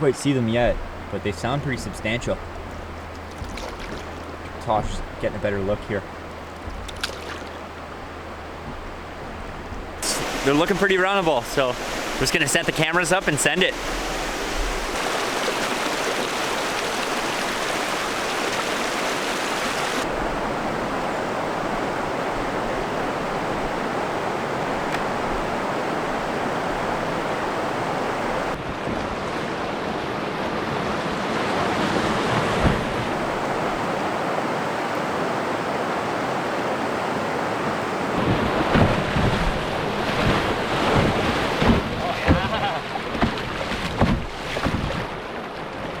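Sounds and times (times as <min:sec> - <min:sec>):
whitewater rapids rushing: 0:10.0 - 0:28.6, 0:29.6 - 0:43.6.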